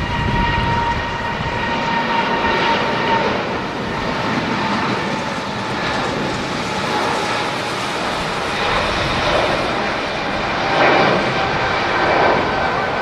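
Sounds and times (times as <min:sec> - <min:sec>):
jet engines roaring: 0:00.0 - 0:13.0
wind rumbling on microphone: 0:00.0 - 0:13.0.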